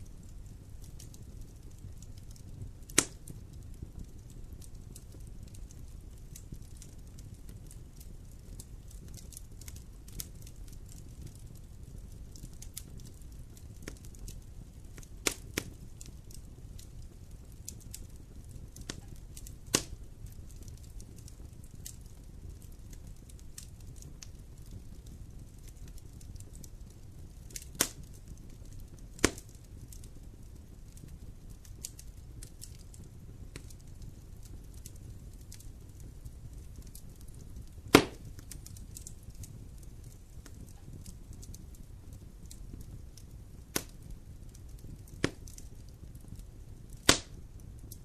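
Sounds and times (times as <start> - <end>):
campfire crackling and popping: 0.0 - 48.0
low rumble of flames: 0.0 - 48.0.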